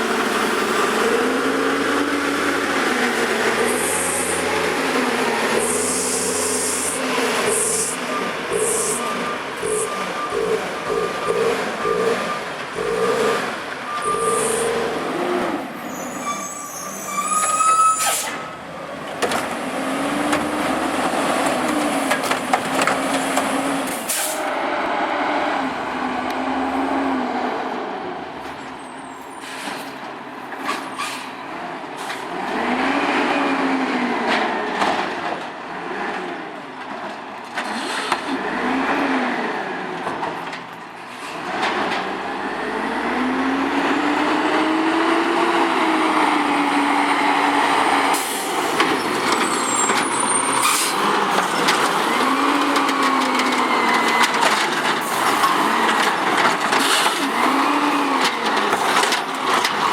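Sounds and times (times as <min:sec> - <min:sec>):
garbage truck engine revving: 0:00.0 - 0:17.1, 0:41.2 - 0:59.9
air brake hisses: 0:17.8 - 0:18.5, 0:24.1 - 0:24.5, 0:29.4 - 0:30.0.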